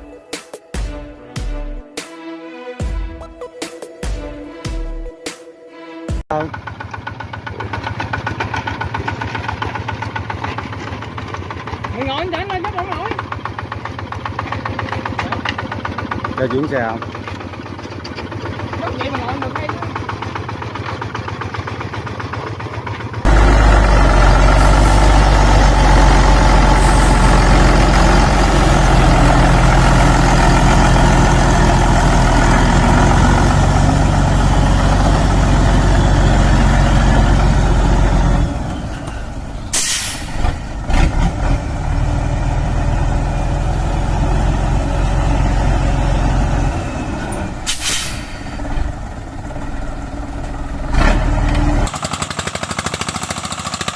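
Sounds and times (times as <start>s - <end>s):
diesel engine running: 6.3s - 53.9s
short hisses: 39.7s - 40.4s, 47.7s - 48.5s.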